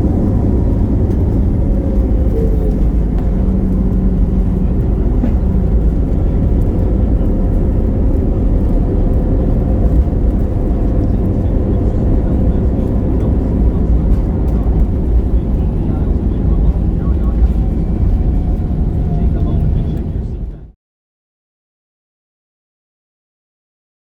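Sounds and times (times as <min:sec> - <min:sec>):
aircraft cabin engine rumble: 0:00.0 - 0:20.8.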